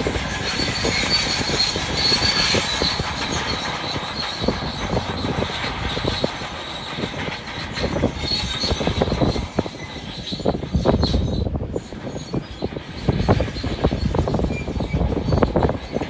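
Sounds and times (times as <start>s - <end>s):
bulldozer tracks squealing: 0.0s - 16.0s.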